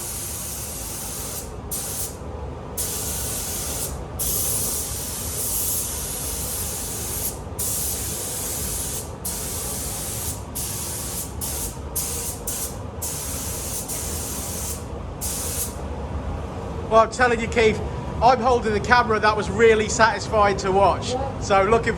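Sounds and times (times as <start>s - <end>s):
paint spray gun hissing: 0.0s - 2.2s, 2.8s - 15.8s.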